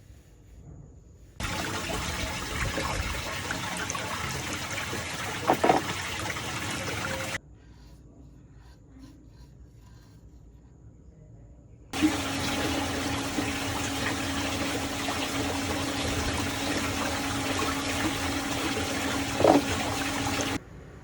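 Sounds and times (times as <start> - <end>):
water splashes and gurgles: 1.4 - 7.4, 12.0 - 20.6
water swirling down a drain: 1.4 - 7.4, 12.0 - 20.6.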